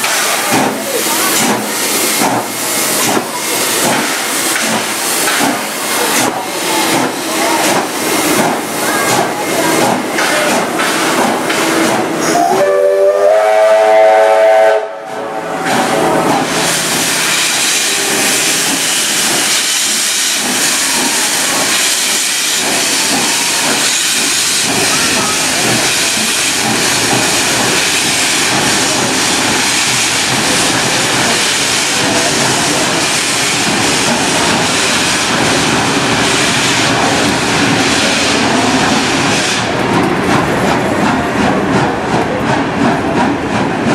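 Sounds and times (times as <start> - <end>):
rushing hiss of steam: 0.0 - 39.9
steam locomotive exhaust beating: 0.0 - 43.9
steam whistle chord: 12.2 - 15.5.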